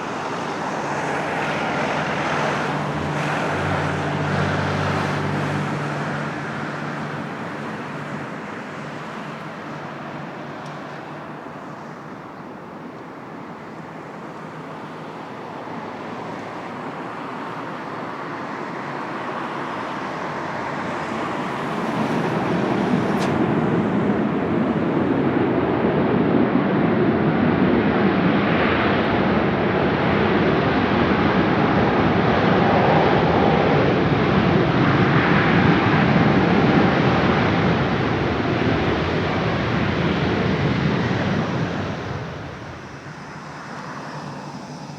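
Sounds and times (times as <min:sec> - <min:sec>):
jet airliner engines running: 0:00.0 - 0:44.9.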